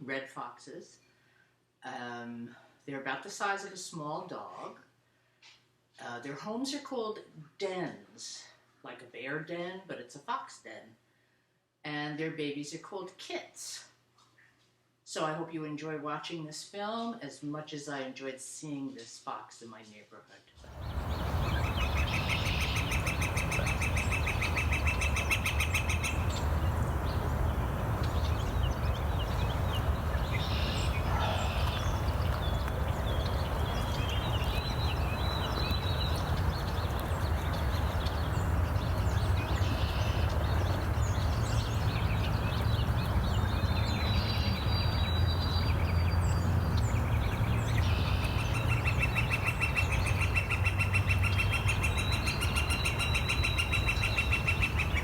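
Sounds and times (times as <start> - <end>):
steady low rumble: 20.6 - 47.3
songbirds chirping and singing: 20.6 - 55.0
fast pulsed bird trill: 21.5 - 26.7.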